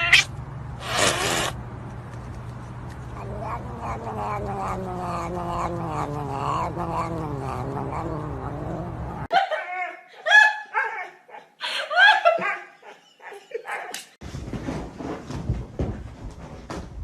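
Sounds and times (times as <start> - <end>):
cat yowling: 0.0 - 0.3, 3.2 - 9.3.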